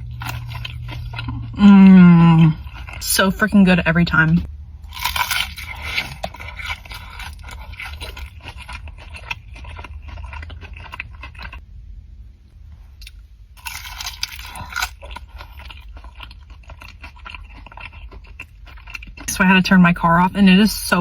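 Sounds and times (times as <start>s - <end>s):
person chewing and crunching: 0.0s - 4.2s, 4.8s - 11.6s, 13.0s - 19.3s.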